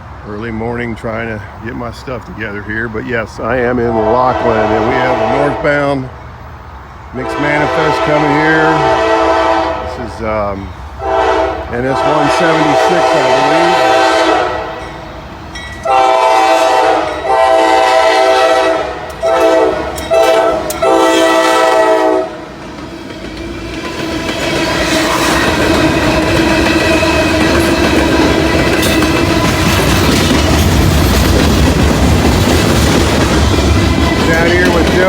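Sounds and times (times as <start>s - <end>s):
train passing rumble: 0.0s - 35.0s
locomotive air horn blasts: 3.8s - 6.0s, 7.2s - 10.0s, 11.0s - 14.9s, 15.8s - 22.4s
train wheels clacking on rail joints: 19.0s - 21.0s, 22.4s - 35.0s.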